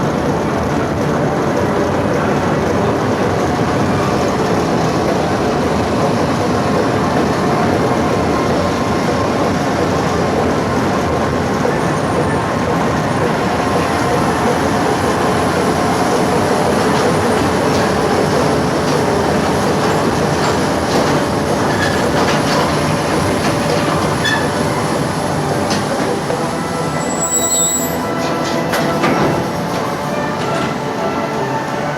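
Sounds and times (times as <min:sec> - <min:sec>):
train wheels rumbling on track: 0:00.0 - 0:31.9
faint wheel squeal: 0:27.0 - 0:28.2.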